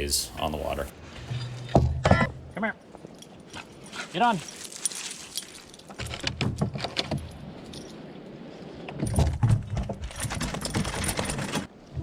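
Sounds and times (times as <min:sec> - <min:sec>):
dog collar tags jingling: 0:03.1 - 0:06.2.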